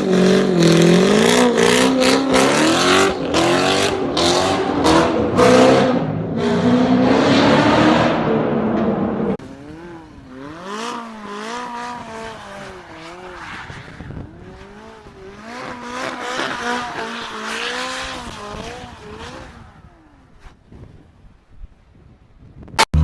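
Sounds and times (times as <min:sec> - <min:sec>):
car engine revving hard: 0:00.0 - 0:13.2.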